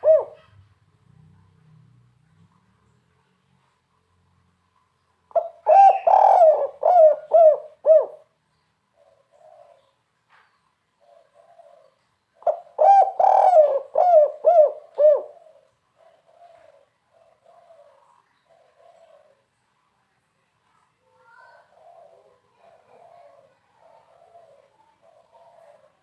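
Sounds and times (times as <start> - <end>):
dove cooing: 0.0 - 0.7, 5.3 - 10.0, 11.0 - 19.5, 21.3 - 26.0.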